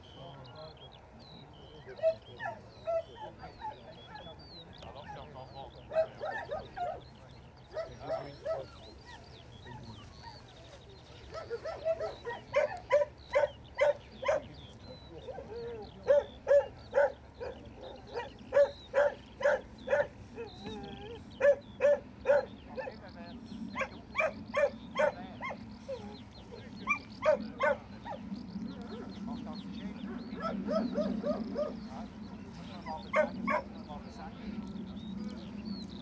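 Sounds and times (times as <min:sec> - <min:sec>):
dog barking: 0:02.0 - 0:04.3, 0:05.9 - 0:07.0, 0:07.7 - 0:08.8, 0:11.3 - 0:14.5, 0:15.3 - 0:20.6, 0:21.4 - 0:23.0, 0:23.8 - 0:25.6, 0:26.9 - 0:28.2, 0:30.4 - 0:31.8, 0:33.1 - 0:33.7.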